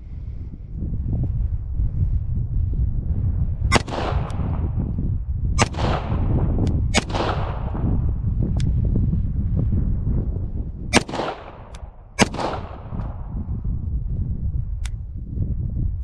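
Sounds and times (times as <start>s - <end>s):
wind rumble on microphone: 0.0s - 16.0s
pistol shots echoing: 3.7s - 4.4s, 5.6s - 6.3s, 7.0s - 7.9s, 11.0s - 13.1s
fainter gunshot cracks: 3.7s - 4.6s, 5.6s - 6.3s, 7.0s - 7.9s, 11.0s - 13.2s.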